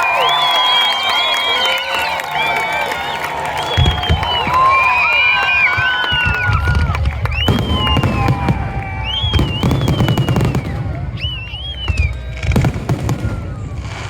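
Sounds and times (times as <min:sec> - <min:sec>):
fireworks whistling: 0:00.0 - 0:14.0
fireworks bangs: 0:03.4 - 0:14.0
fireworks crackling pops: 0:03.6 - 0:04.9, 0:05.5 - 0:14.0.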